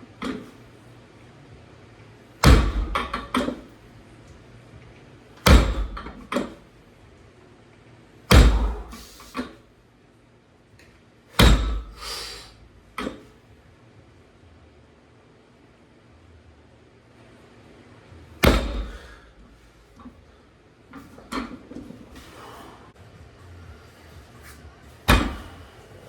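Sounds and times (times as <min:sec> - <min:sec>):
heavy barbell thud on floor: 0:02.4 - 0:03.7, 0:05.4 - 0:06.6, 0:08.3 - 0:09.6, 0:11.4 - 0:12.1, 0:18.4 - 0:19.2, 0:25.0 - 0:25.7.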